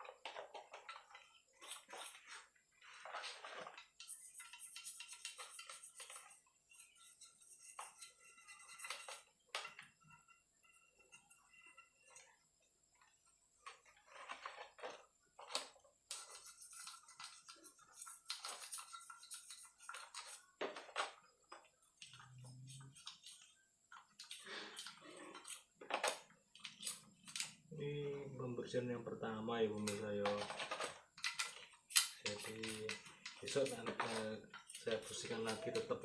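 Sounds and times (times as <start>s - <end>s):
brush scrubbing in petrol: 1.2s - 9.3s, 16.1s - 20.6s, 32.2s - 36.0s.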